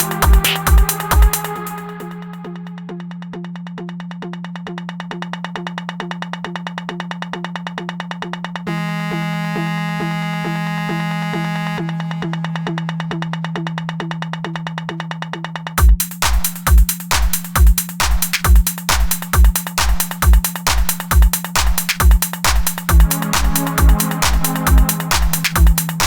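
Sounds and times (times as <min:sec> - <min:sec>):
fast ticking pulse: 0:00.0 - 0:08.6, 0:12.2 - 0:26.0
synth bass drone: 0:00.0 - 0:16.0, 0:21.2 - 0:26.0.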